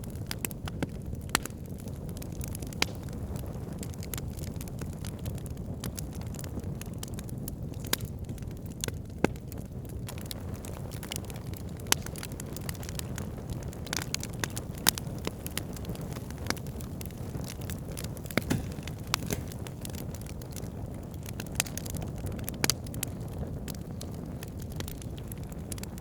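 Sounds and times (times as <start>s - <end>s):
campfire flames rumbling: 0.0s - 26.0s
fire crackling and popping: 0.0s - 26.0s.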